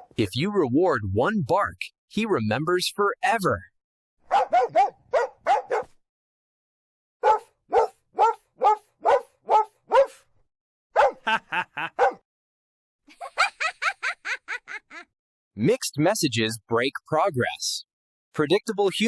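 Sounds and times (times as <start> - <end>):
dog barking: 4.3 - 6.0, 7.2 - 10.3, 10.9 - 12.2
dog yapping: 4.3 - 6.0, 7.2 - 10.2, 11.0 - 11.3, 12.0 - 12.2.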